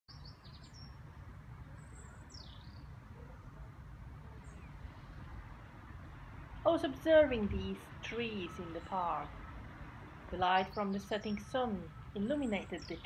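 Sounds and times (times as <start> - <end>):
high bird calls: 8.2 - 13.0.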